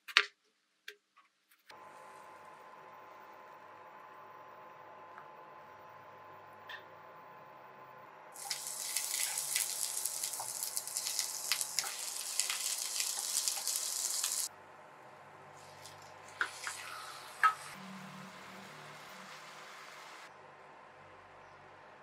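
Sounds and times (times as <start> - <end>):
shallots sizzling in hot oil: 8.4 - 14.5, 15.6 - 17.8.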